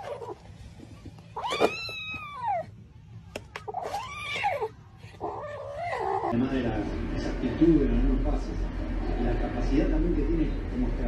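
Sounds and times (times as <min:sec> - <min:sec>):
cat yowling: 0:01.4 - 0:02.7, 0:03.7 - 0:06.4.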